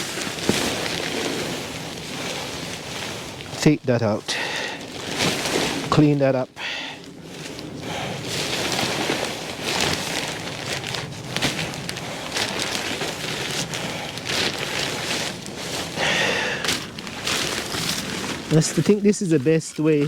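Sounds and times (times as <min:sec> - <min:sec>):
dry debris scraping and crackling: 0:00.0 - 0:20.0.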